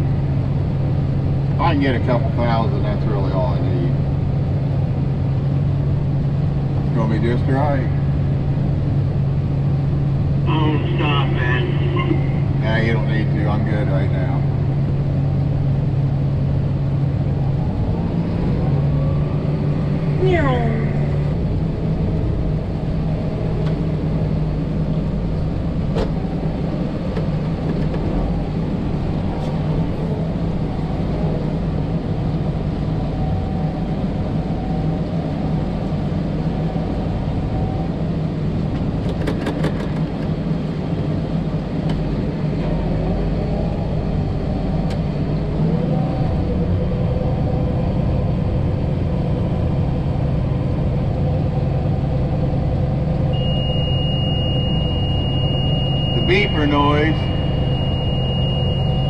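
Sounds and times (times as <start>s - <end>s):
combine harvester engine drone: 0.0s - 59.0s
higher machine tone: 53.3s - 59.0s.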